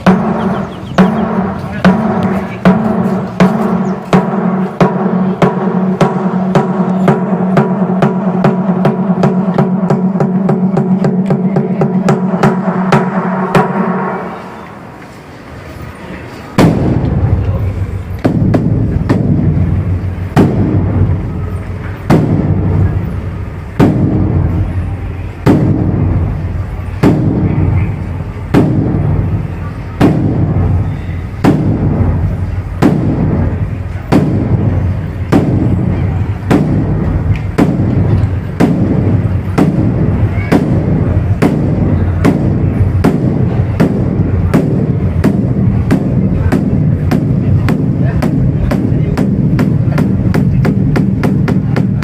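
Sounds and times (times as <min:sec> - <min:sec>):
large drum booming strikes: 0:00.0 - 0:14.4, 0:16.6 - 0:52.0.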